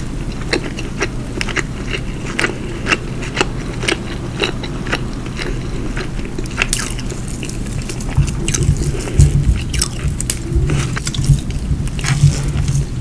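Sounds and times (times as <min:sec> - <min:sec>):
chewing soft food: 0:00.2 - 0:13.0
wet mouth clicks: 0:06.4 - 0:13.0
heavy low thuds: 0:06.8 - 0:13.0.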